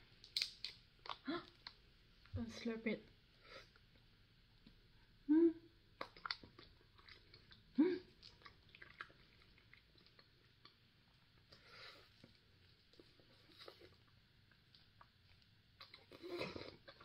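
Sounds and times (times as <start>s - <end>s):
wet chewing clicks: 0.2s - 1.8s, 6.0s - 10.8s
person humming: 5.3s - 5.6s.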